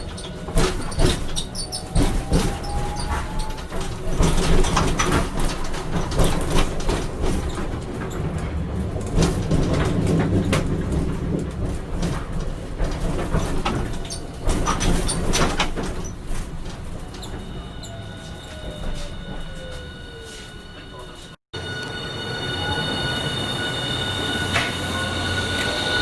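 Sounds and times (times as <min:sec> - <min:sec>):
clacks over rail joints: 0:00.0 - 0:17.6
tram wheels rumbling: 0:00.0 - 0:26.0.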